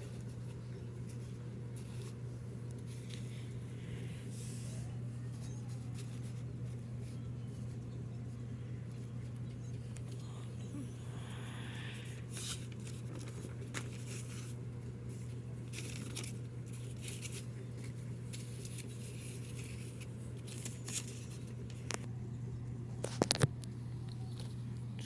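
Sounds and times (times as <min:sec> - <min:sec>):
packaging rustling and scraping: 0:00.0 - 0:03.6, 0:12.3 - 0:22.1
steady low hum: 0:00.0 - 0:25.0.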